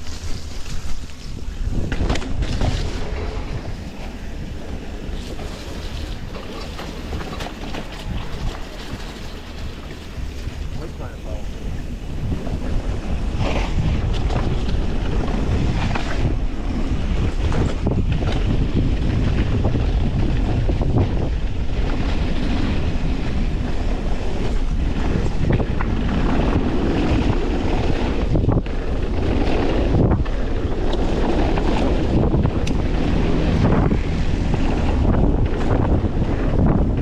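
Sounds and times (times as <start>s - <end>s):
bike knocks and rattles: 0.0s - 3.7s
bike tyre noise: 0.0s - 37.0s
wind rushing over microphone: 0.0s - 37.0s.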